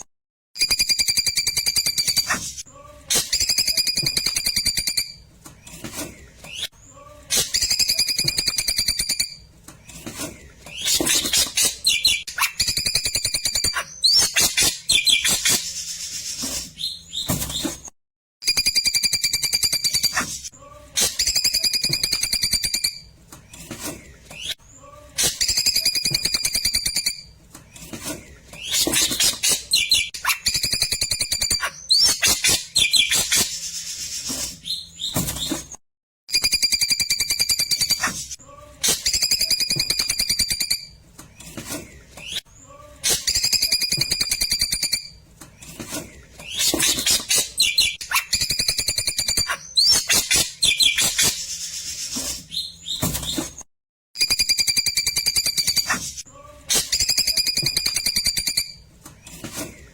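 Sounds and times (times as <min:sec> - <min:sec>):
bird singing trilled phrases: 0:10.7 - 0:15.6, 0:28.6 - 0:33.5, 0:46.4 - 0:51.5.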